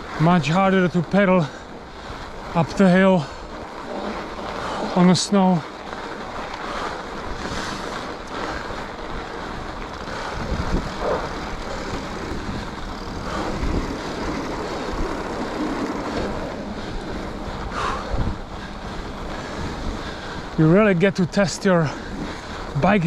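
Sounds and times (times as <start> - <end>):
bike tyres rolling on snow: 0.0 - 23.0
wind on microphone: 6.4 - 21.4.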